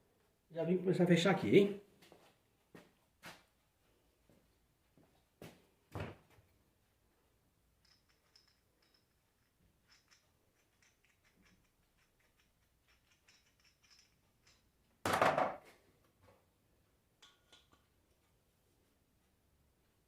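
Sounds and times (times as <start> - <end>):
small metal parts clicking: 7.8 - 14.9.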